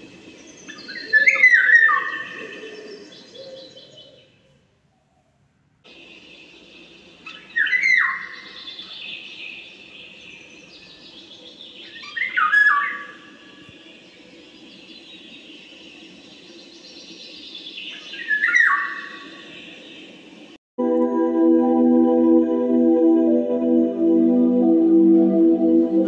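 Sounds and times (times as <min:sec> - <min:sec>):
high-pitched chirping chorus: 0:06.1 - 0:20.1.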